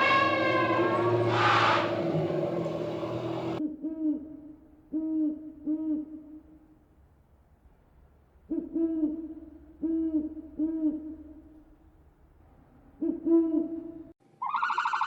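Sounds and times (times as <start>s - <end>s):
bird hooting: 0.0s - 4.1s, 8.5s - 11.5s, 12.9s - 15.0s.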